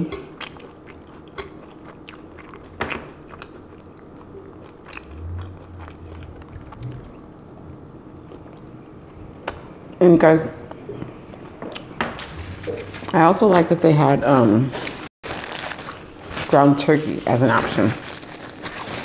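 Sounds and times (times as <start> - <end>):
chewing food with crunchy clicks: 0.0 - 9.7.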